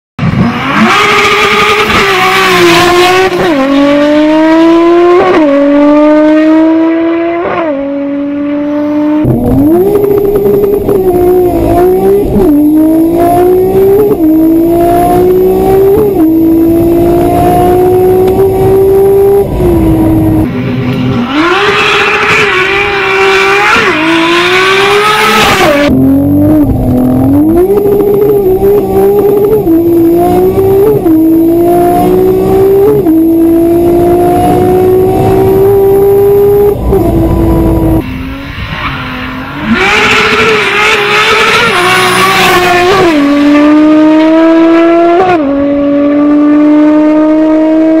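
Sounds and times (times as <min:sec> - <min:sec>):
car engine accelerating: 0:00.2 - 0:48.0.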